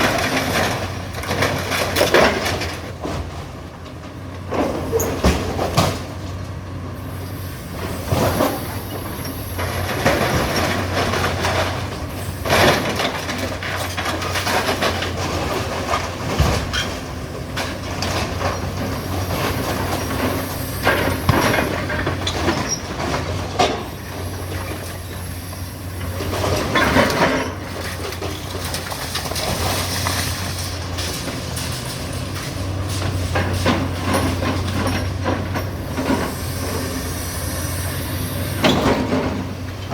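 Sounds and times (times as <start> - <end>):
shears crunching and screeching debris: 0.0 - 3.6, 4.4 - 39.9
diesel engine running: 0.0 - 39.9.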